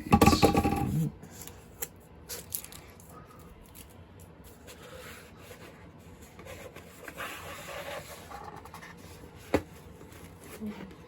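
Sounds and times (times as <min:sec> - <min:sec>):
paper and cardboard rustling: 0:04.4 - 0:11.0.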